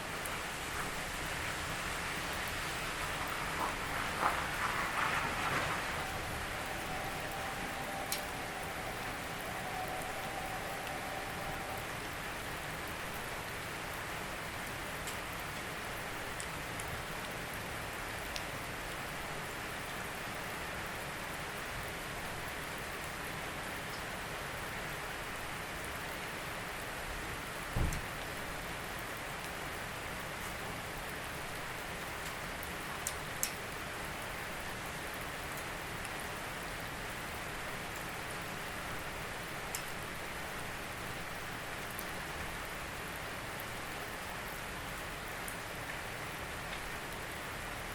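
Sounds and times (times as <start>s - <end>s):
single raindrops: 0.0s - 13.8s
steady rain hiss: 0.0s - 47.9s.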